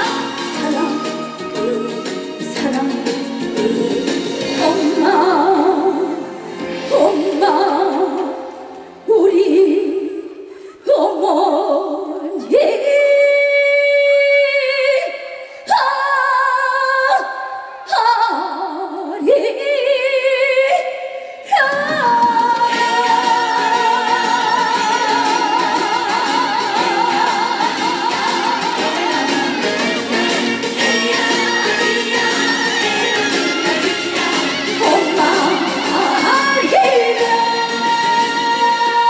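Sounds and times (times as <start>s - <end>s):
backing music: 0.0s - 9.1s, 21.6s - 39.0s
woman singing with vibrato: 0.0s - 39.0s.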